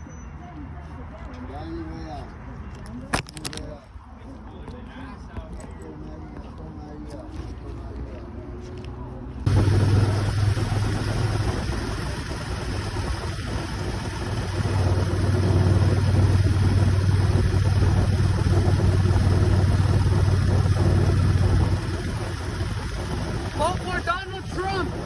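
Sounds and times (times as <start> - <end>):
motorcycle engine running: 9.5 - 25.0
steady rushing noise: 9.5 - 25.0.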